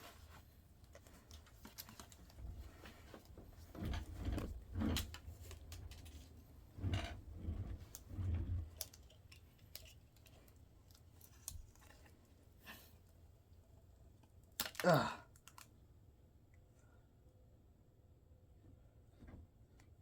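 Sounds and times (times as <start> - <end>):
small parts clicking and scraping: 0.8 - 12.8, 14.2 - 15.7.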